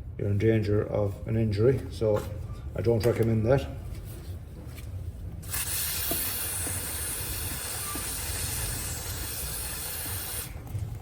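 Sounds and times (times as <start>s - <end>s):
aerosol can spraying: 5.4s - 10.5s.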